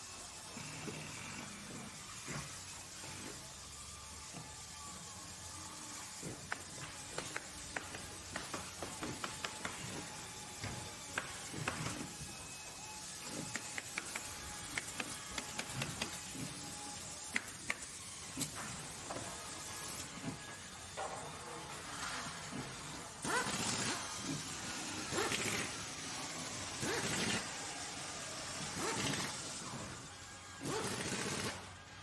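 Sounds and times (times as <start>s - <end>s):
sharp clicks and knocks: 6.2s - 12.1s, 13.3s - 16.3s.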